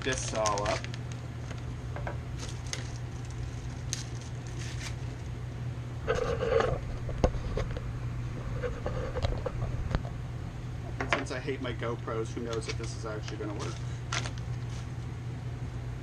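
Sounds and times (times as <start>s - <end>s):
steady low hum: 0.0s - 16.0s
rustling: 2.4s - 5.3s.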